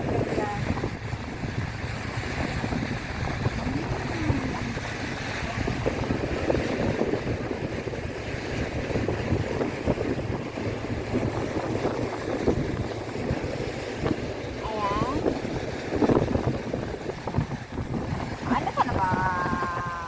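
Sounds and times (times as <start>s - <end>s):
boat engine running: 0.0s - 20.0s
water rushing past: 0.0s - 20.0s
wind buffeting microphone: 0.0s - 20.0s.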